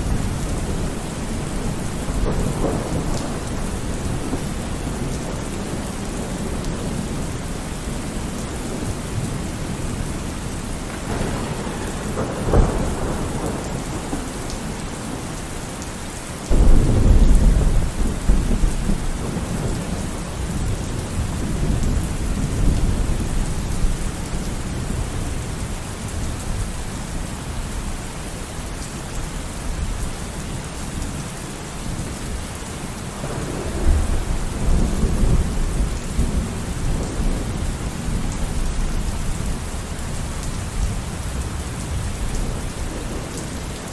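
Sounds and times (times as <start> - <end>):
sharp thunderclap: 0.0 - 7.2, 10.8 - 15.3, 16.5 - 24.1, 33.2 - 39.2
rolling thunder: 0.0 - 15.8, 16.5 - 27.3, 32.9 - 43.9
heavy rain: 0.0 - 43.9.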